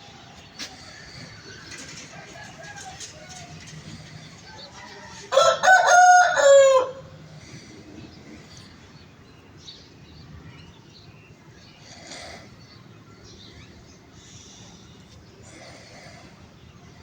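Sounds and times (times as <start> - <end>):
rooster crowing: 1.9 - 7.3.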